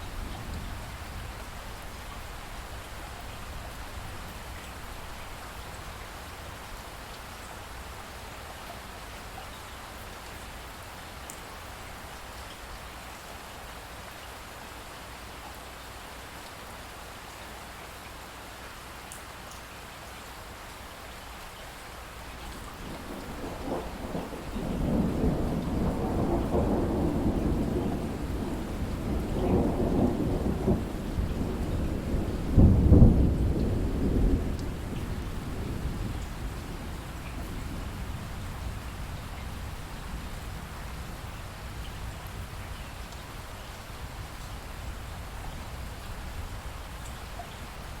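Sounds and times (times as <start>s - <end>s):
steady rain falling: 0.0s - 48.0s
rolling thunder: 22.8s - 41.3s.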